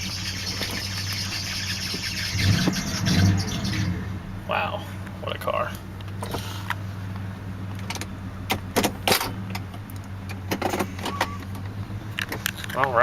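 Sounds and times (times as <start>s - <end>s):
car engine idling: 0.0s - 13.0s
sharp clicks and knocks: 7.7s - 12.9s.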